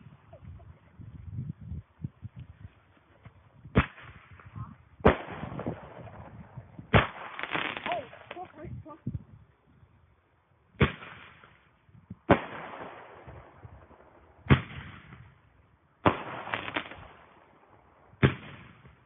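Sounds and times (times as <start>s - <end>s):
firework bangs with echo: 3.7s - 4.4s, 5.0s - 8.4s, 10.8s - 11.6s, 12.2s - 15.3s, 16.0s - 17.4s, 18.1s - 19.0s.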